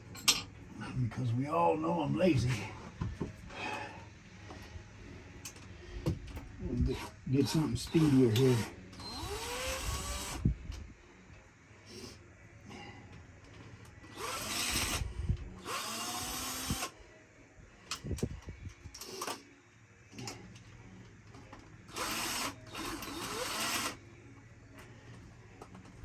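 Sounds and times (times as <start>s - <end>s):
power drill whining: 6.9s - 10.4s, 14.1s - 15.0s, 15.6s - 17.0s, 21.9s - 24.0s.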